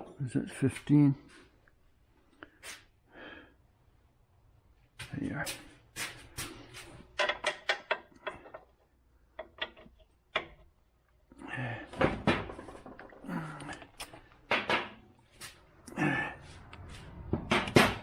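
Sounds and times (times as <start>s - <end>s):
hand tools clinking and knocking: 6.8s - 10.8s, 11.9s - 15.1s.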